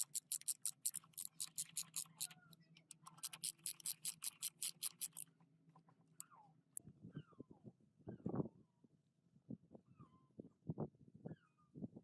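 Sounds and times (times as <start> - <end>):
fast regular sharp clicks: 0.0 - 5.2.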